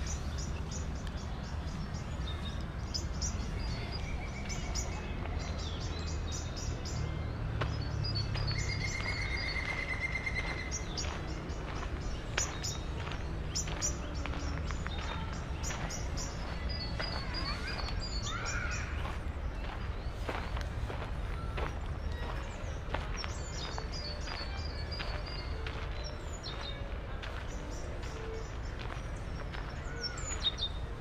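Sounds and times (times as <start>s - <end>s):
birds chirping: 0.0s - 31.0s
low city rumble: 0.0s - 31.0s
bird trill: 8.1s - 19.1s.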